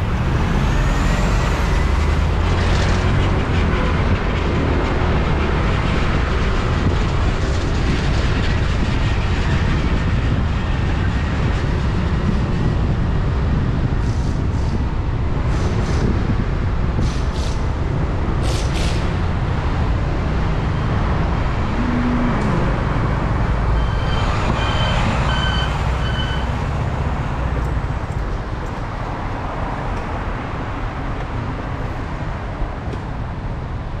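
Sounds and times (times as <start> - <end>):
road noise: 0.0 - 34.0
wind rushing over camera: 1.6 - 23.8
short high beeps: 23.8 - 26.5.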